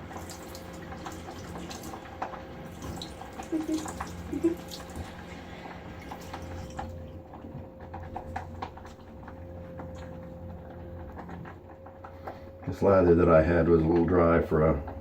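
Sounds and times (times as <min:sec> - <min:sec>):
water splashing at a sink: 0:00.0 - 0:09.0
low steady hum: 0:00.0 - 0:15.0.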